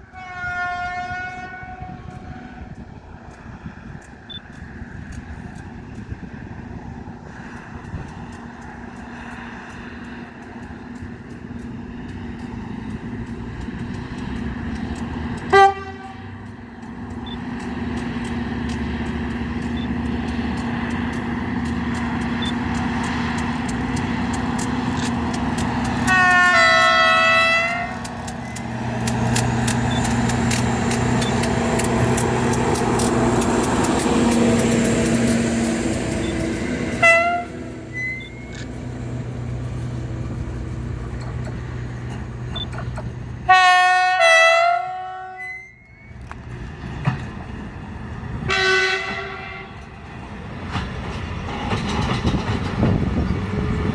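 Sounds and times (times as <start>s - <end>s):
locomotive horn: 0.0s - 2.7s, 15.4s - 16.5s, 25.9s - 28.1s, 36.2s - 38.8s, 43.4s - 46.1s, 48.4s - 49.9s
freight train drone: 0.0s - 53.9s
wheels clicking over rail joints: 2.1s - 53.9s.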